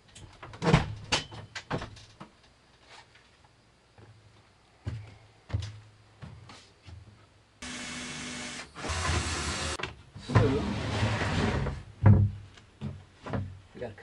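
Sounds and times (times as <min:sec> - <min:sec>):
electric power tool whining: 0:07.6 - 0:09.8.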